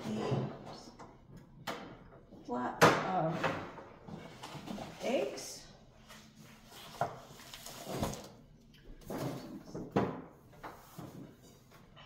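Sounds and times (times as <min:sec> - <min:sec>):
items knocking and rustling in drawer: 0:06.9 - 0:11.7.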